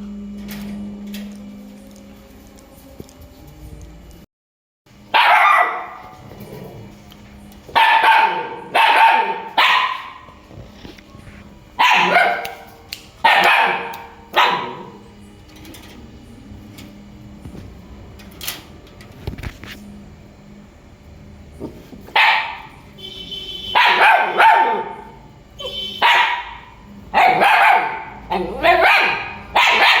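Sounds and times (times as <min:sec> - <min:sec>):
dog barking: 0:05.1 - 0:06.2, 0:07.7 - 0:10.4, 0:11.8 - 0:15.0, 0:22.1 - 0:22.8, 0:23.7 - 0:30.0.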